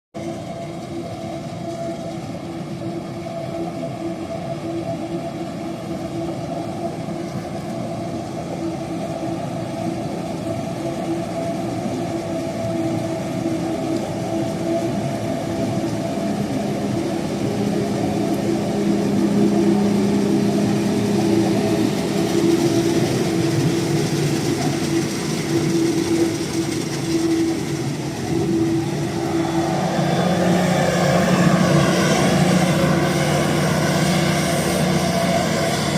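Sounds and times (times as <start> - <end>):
tractor diesel engine running: 9.6 - 35.9.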